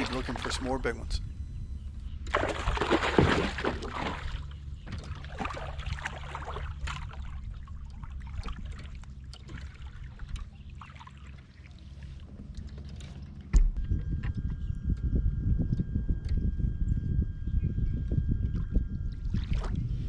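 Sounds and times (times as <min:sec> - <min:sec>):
water splashing: 0:00.0 - 0:12.3.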